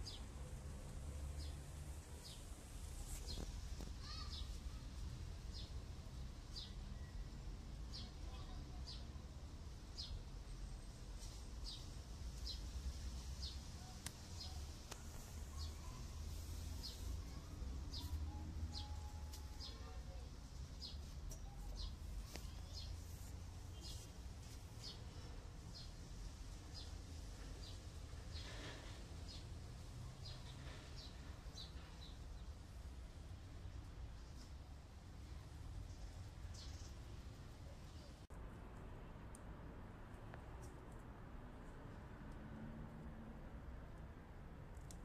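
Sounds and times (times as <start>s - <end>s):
small bird chirping: 35.9s - 38.2s.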